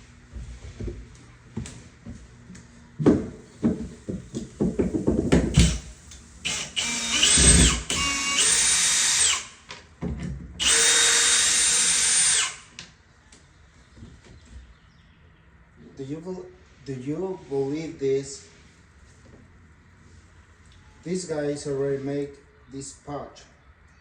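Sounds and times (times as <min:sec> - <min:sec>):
knocks and handling clatter: 0:03.0 - 0:05.8, 0:09.9 - 0:10.6
power drill whine: 0:05.5 - 0:09.6, 0:10.6 - 0:12.8.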